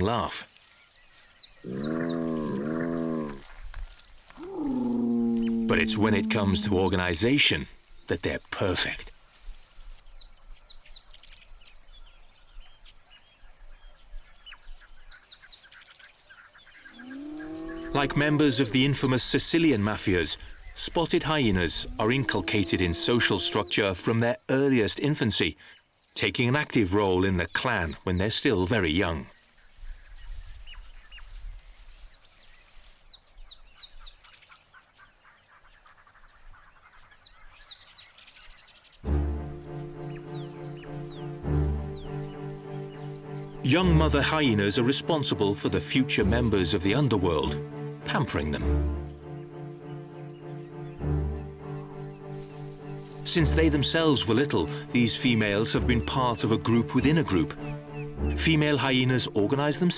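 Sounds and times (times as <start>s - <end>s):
birds chirping: 0.0s - 24.1s, 25.4s - 59.9s
music: 17.9s - 23.7s, 39.0s - 59.9s
faint outdoor hiss: 37.2s - 59.9s.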